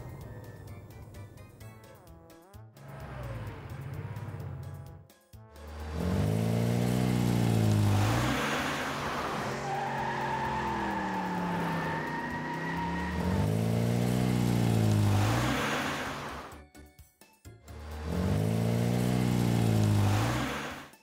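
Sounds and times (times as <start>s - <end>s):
cartoon car engine revving: 2.8s - 4.9s, 5.6s - 16.6s, 17.7s - 21.0s
high squeal: 9.4s - 13.5s.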